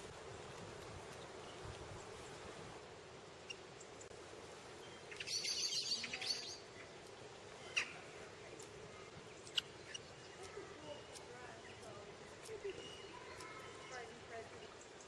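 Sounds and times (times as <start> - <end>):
bird chirps: 4.8 - 6.9, 9.0 - 15.0
bird chattering: 5.1 - 6.7, 9.4 - 15.0.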